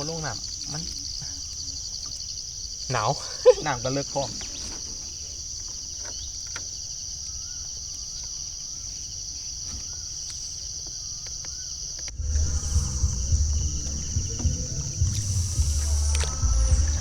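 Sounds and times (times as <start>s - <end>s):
crickets and insects chirring: 0.0s - 17.0s
faint wavering call: 12.1s - 17.0s
low rumble: 12.1s - 17.0s.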